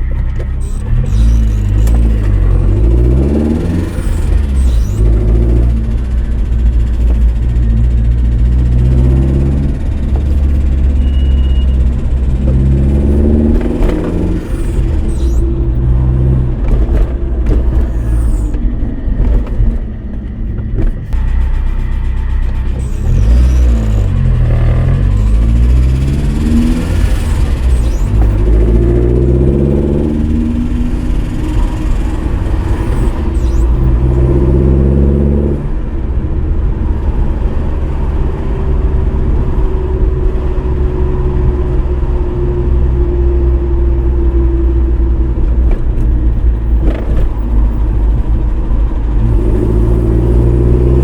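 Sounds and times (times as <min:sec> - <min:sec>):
car engine running: 0:00.0 - 0:51.0
engine lifters ticking: 0:00.0 - 0:51.0.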